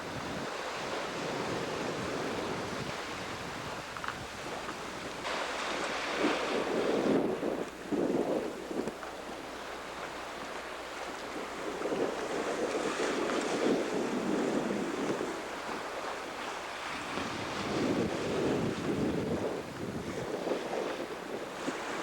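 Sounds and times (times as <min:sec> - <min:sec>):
sea water rushing along a hull: 0:00.0 - 0:22.0
wind buffeting the microphone: 0:00.0 - 0:22.0.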